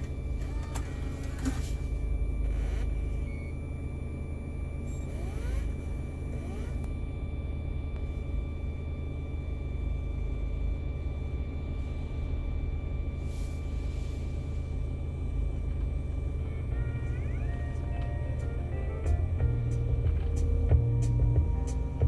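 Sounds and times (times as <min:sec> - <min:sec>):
high-pitched electronic whine: 0:00.0 - 0:22.0
diesel engine rumble: 0:11.4 - 0:22.0.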